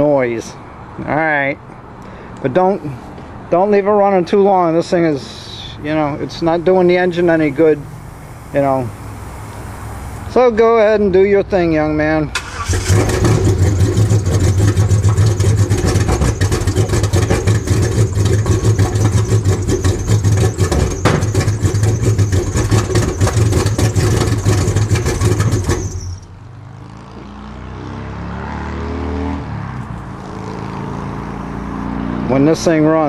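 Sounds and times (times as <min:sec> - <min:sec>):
loud engine with rapid pulsing blat: 0:05.3 - 0:11.2, 0:12.4 - 0:29.5, 0:30.2 - 0:33.0.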